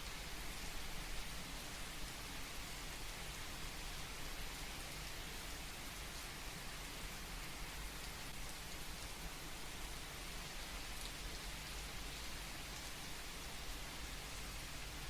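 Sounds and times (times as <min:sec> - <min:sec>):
gentle rain patter: 0:00.0 - 0:15.0.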